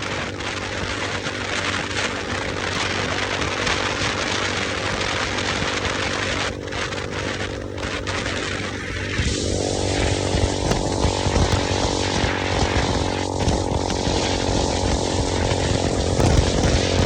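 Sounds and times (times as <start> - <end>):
motorcycle engine running: 0.0 - 17.0
loud rushing hiss: 8.5 - 17.0.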